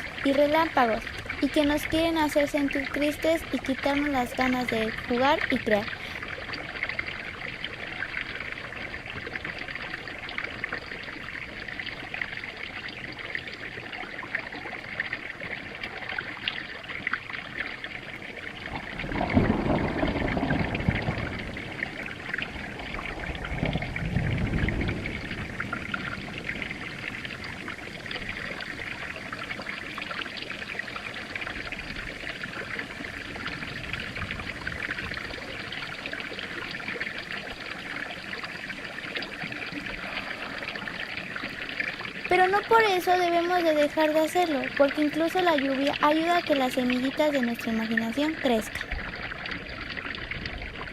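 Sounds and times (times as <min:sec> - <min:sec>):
rain falling: 0:00.0 - 0:50.9
thunder rumbles: 0:18.7 - 0:28.0.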